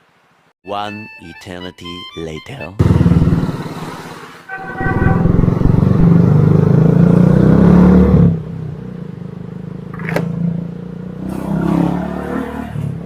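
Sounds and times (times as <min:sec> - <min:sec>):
motorcycle engine running: 0:02.8 - 0:07.6.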